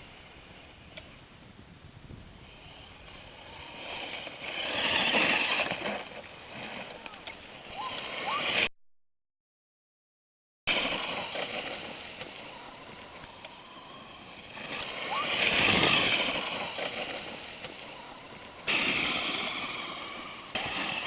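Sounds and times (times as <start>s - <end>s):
rc truck electric motor: 2.4s - 8.7s, 10.7s - 21.0s.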